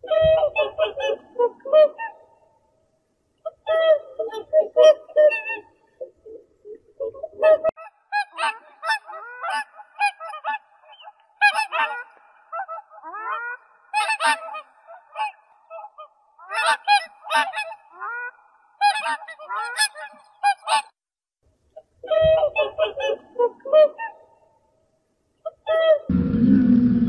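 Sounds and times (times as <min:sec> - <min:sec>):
geese honking: 0:11.4 - 0:15.4.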